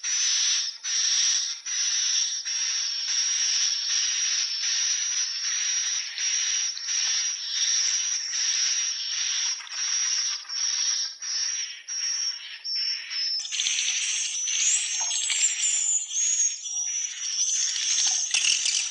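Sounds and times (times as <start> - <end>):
swiftlets chirping: 13.4 - 18.9.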